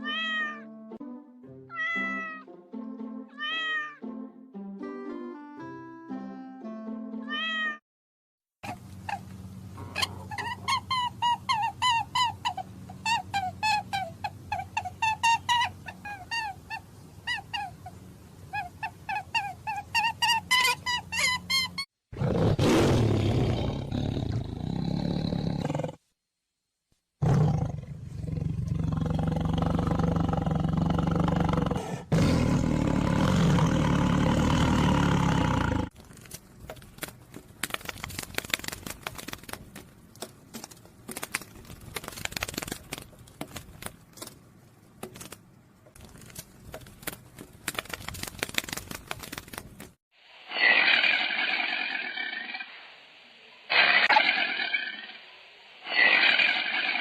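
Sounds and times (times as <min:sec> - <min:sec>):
high-pitched animal calls: 0:08.6 - 0:21.9
big cat roaring: 0:22.2 - 0:26.0, 0:27.2 - 0:35.9.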